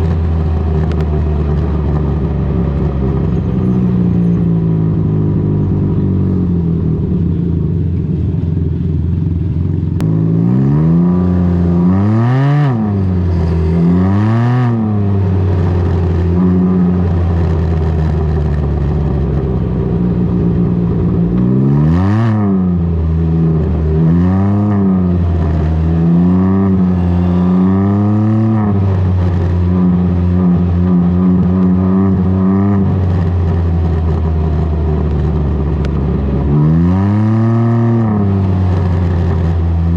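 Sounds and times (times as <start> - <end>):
engine revving: 10.0 - 39.9.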